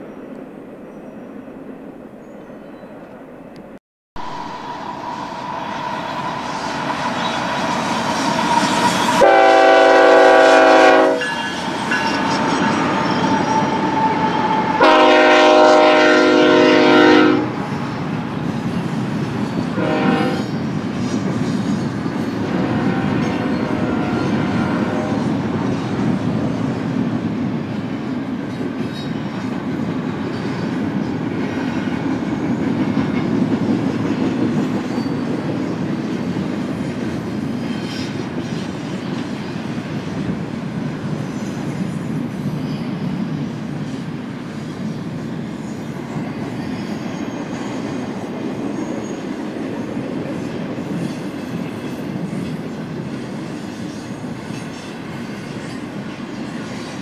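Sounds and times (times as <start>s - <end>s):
freight train rumbling past: 0.0s - 57.0s
locomotive air horn blasts: 9.2s - 12.2s, 13.6s - 17.6s, 19.7s - 20.5s, 22.5s - 25.2s.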